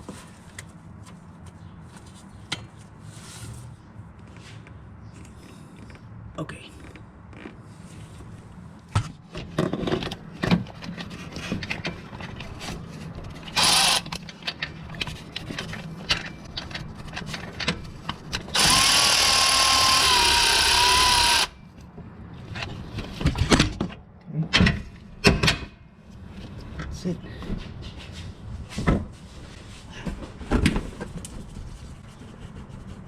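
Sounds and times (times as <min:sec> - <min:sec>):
cordless power tool whine: 0:13.6 - 0:14.1, 0:18.5 - 0:21.6.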